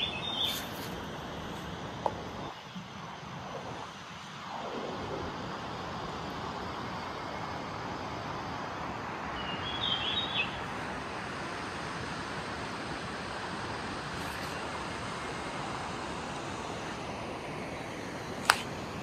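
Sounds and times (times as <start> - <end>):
bird chirping: 0.0 - 0.8, 9.3 - 10.7
creek water flowing: 10.2 - 19.0.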